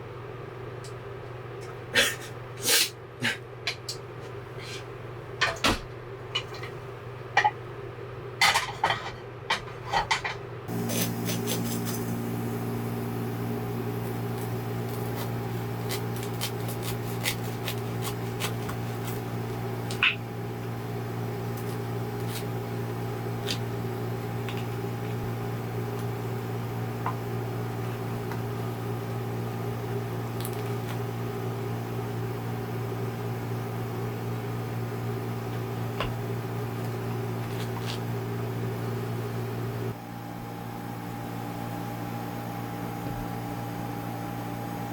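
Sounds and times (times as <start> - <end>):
electric appliance humming: 10.6 - 44.9.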